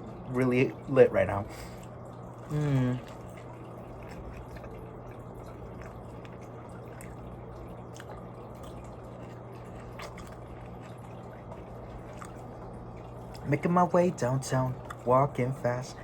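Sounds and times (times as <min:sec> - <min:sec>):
low electrical hum: 0:00.0 - 0:16.0
person chewing food: 0:01.7 - 0:13.5, 0:14.8 - 0:15.0.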